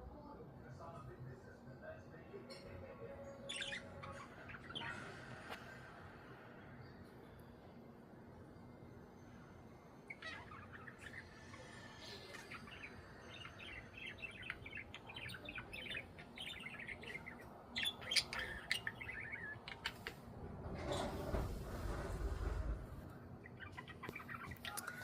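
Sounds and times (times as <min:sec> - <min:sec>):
budgerigars chattering: 0:12.3 - 0:20.2.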